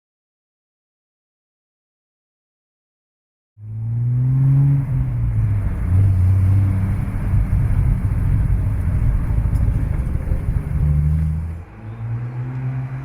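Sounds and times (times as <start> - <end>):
car engine running: 4.6 - 11.6.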